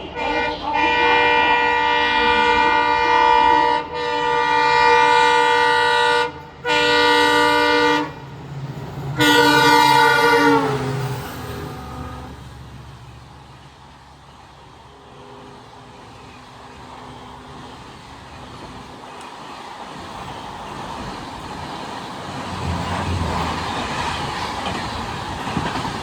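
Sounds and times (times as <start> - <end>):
rumble of passing train: 0.0 - 26.0
locomotive air horn blasts: 0.1 - 8.2, 9.2 - 11.0, 11.7 - 12.4.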